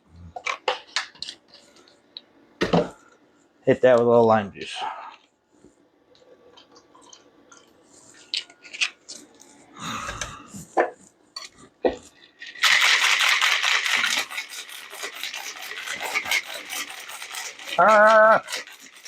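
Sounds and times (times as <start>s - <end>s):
cocktail shaker rattling: 12.4s - 19.0s.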